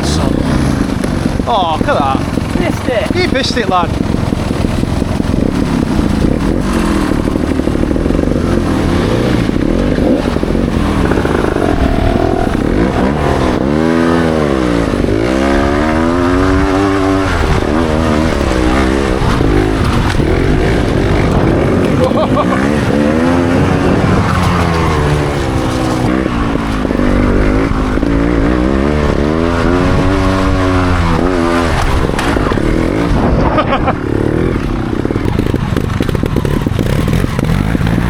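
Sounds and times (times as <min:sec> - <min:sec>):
motorcycle engine revving: 0:00.0 - 0:38.0
steady rush of noise: 0:00.0 - 0:38.0.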